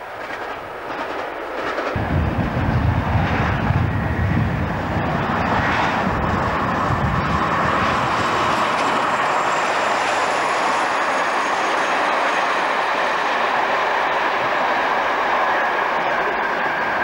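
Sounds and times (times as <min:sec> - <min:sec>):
train wheels on rails: 0:00.0 - 0:17.0
locomotive engine rumble: 0:02.0 - 0:11.3.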